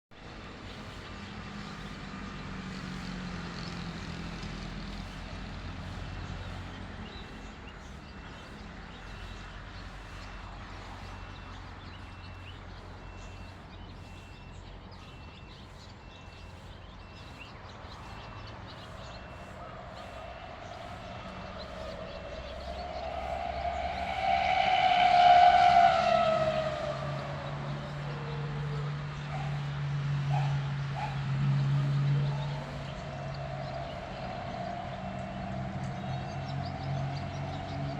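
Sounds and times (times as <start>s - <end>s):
low rumble: 19.6s - 28.8s.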